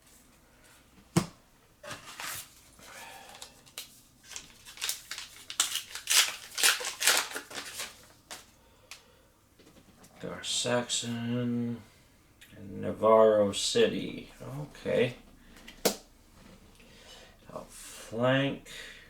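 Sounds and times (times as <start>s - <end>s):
foil wrapper crinkling and tearing: 2.1s - 8.5s.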